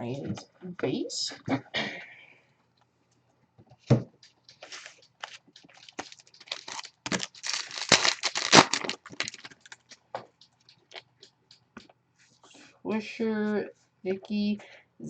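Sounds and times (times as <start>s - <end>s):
wrapper crinkling and tearing: 4.6s - 10.1s.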